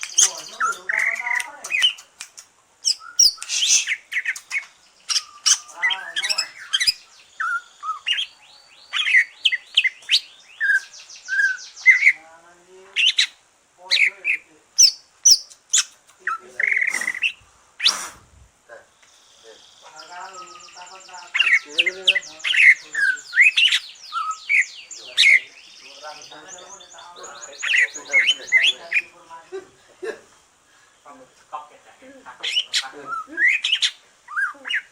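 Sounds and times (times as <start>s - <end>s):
bird singing chirps and whistles: 0.0s - 2.0s, 2.9s - 4.0s, 5.1s - 8.3s, 19.1s - 29.1s.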